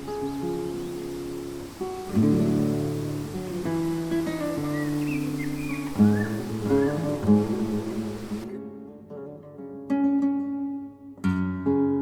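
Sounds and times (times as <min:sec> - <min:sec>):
steady hiss: 0:00.0 - 0:08.5
acoustic guitar music: 0:00.0 - 0:12.0.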